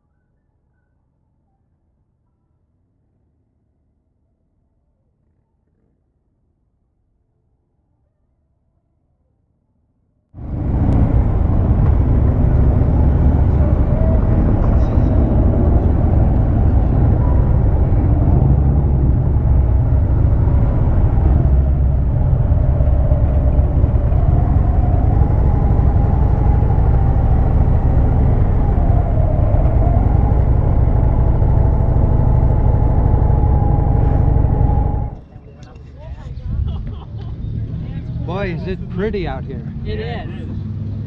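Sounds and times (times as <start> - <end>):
motorcycle engine running: 10.4 - 35.2
wind rumble on microphone: 10.4 - 41.0.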